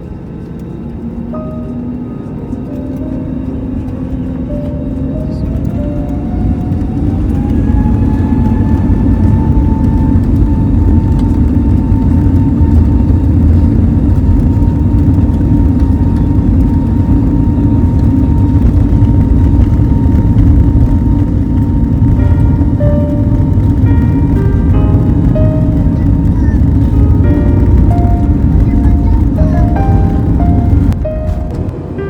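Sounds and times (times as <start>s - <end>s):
airliner engines rumbling: 0.0s - 32.0s
jet engine whine: 0.0s - 32.0s.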